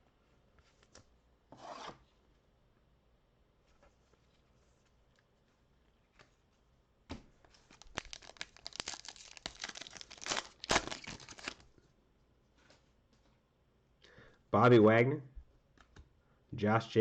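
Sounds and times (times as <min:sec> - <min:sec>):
plastic wrapper tearing and crinkling: 0:07.6 - 0:11.6.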